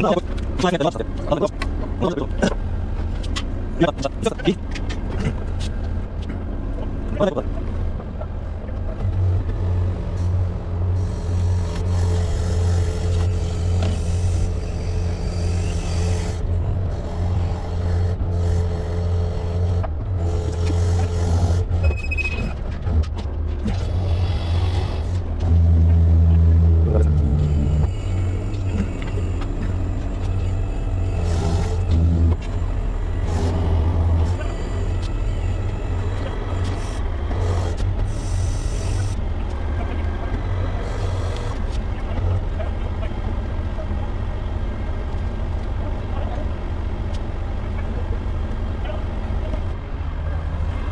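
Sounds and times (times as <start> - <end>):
diesel engine humming: 0.0 - 50.9.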